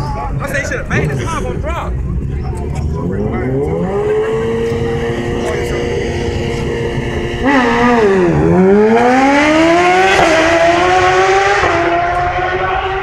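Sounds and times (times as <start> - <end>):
racing engine accelerating: 2.6 - 13.0.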